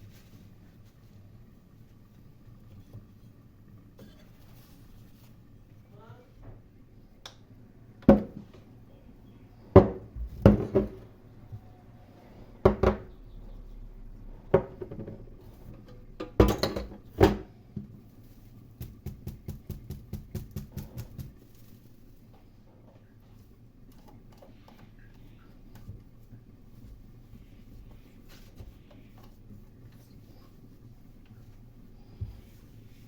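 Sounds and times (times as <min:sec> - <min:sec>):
dishes and utensils knocking: 0:16.2 - 0:17.4
light rapid taps: 0:18.8 - 0:21.4.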